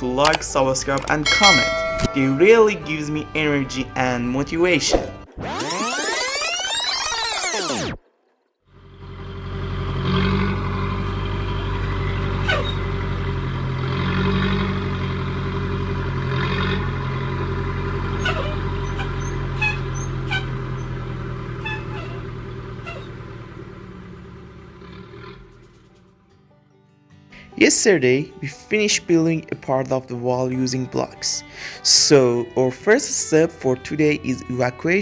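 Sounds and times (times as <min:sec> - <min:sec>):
truck engine running: 0:08.7 - 0:26.3.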